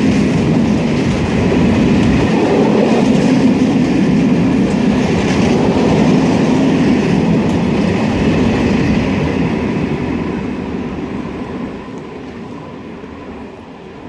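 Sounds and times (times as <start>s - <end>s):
wheels clattering on track: 0.0s - 9.8s
train rumbling past: 0.0s - 14.0s.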